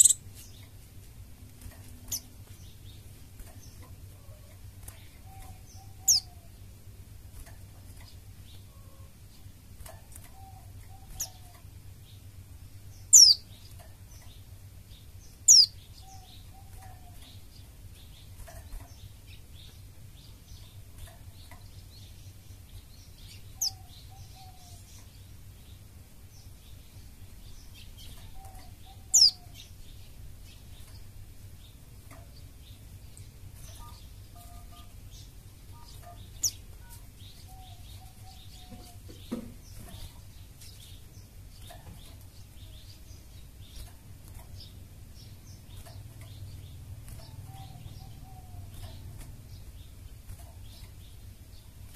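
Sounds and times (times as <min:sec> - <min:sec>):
faint high chirps: 0:00.0 - 0:00.6, 0:33.1 - 0:40.8
steady low hum: 0:00.0 - 0:51.9.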